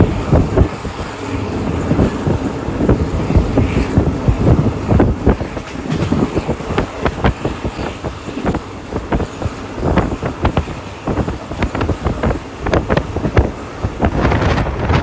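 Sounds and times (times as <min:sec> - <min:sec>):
train rumbling with knocks: 0:00.0 - 0:15.0
wind buffeting microphone: 0:00.0 - 0:15.0.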